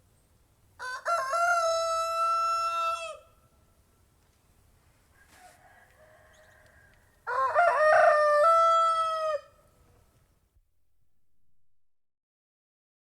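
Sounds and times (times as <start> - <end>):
rooster crowing: 0.8 - 3.4, 5.1 - 9.8.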